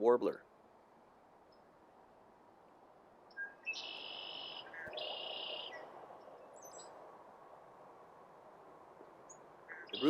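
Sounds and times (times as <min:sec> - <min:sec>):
low woodland hiss: 0:00.6 - 0:10.0
faint high bird chirps: 0:03.3 - 0:05.9, 0:09.7 - 0:10.0.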